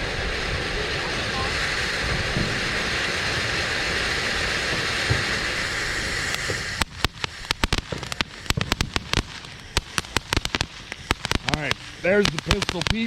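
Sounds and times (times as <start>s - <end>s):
sprinkler spraying water: 0.0s - 13.0s
sharp irregular ticks: 6.3s - 13.0s.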